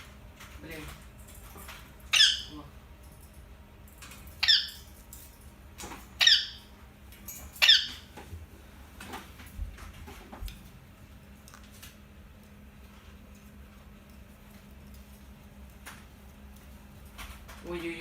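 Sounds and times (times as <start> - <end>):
parakeet calls: 2.0 - 2.7, 4.4 - 4.9, 6.2 - 6.7, 7.6 - 8.1.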